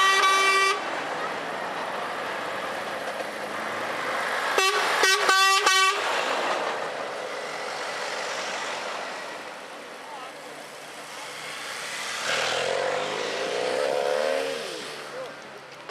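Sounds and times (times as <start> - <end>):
truck horn blasts: 0.0 - 0.8, 4.6 - 6.1
trucks passing: 0.0 - 15.9.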